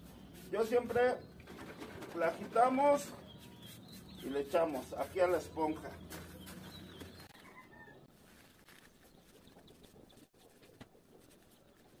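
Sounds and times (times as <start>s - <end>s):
faint bird chirps: 3.0s - 8.1s.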